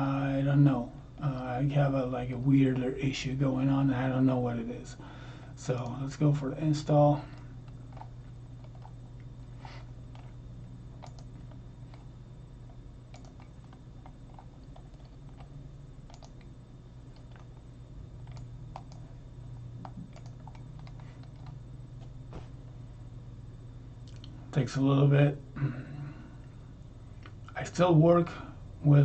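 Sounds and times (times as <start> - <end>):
steady low hum: 0.0 - 29.0
computer keyboard clicks: 11.0 - 11.3, 13.1 - 15.5, 16.1 - 16.5, 18.2 - 19.0, 19.8 - 21.6.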